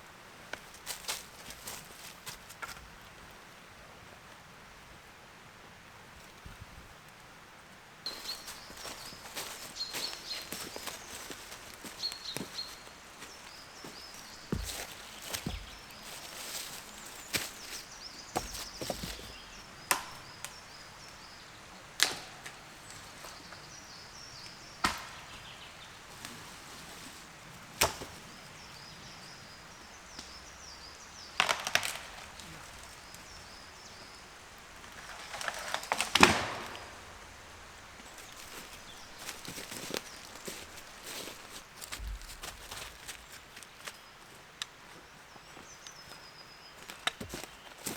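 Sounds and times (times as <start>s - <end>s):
crunching blow on wood: 8.1s - 20.2s
axe chopping wood: 24.8s - 25.2s.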